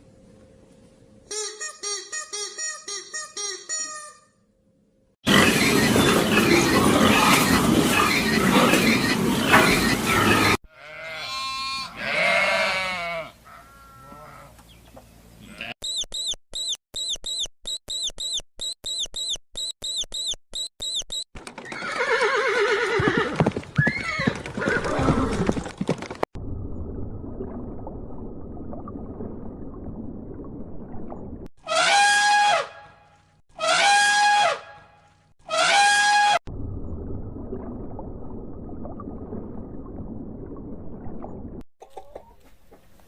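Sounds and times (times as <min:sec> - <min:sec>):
short high chirps: 0:15.8 - 0:21.3.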